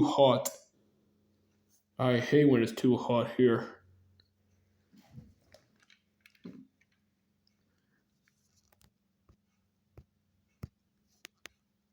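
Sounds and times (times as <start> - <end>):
faint clicks and taps: 5.1 - 11.7.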